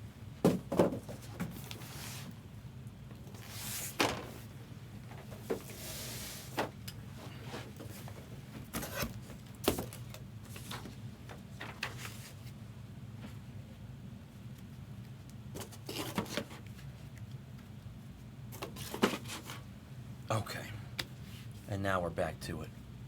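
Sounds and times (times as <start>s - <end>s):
steady low hum: 19.6s - 23.0s.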